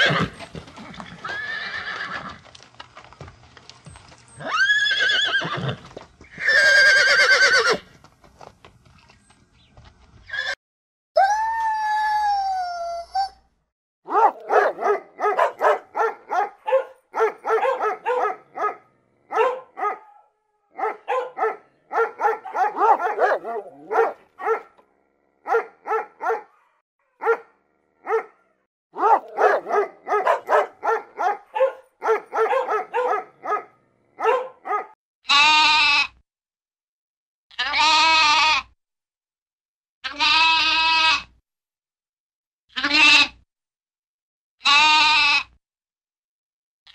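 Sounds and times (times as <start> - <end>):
horse whinnying: 0.0 - 2.4, 4.4 - 7.9, 10.3 - 10.6
dog barking: 14.1 - 24.8, 25.4 - 35.0
lamb bleating: 35.3 - 36.2, 37.5 - 38.7, 40.0 - 41.3, 42.7 - 43.4, 44.6 - 45.6.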